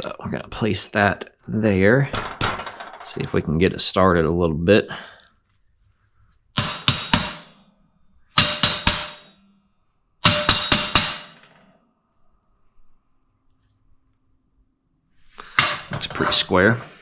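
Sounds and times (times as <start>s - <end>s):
hammer tapping on metal: 6.6s - 7.6s, 8.4s - 9.4s, 10.2s - 11.5s.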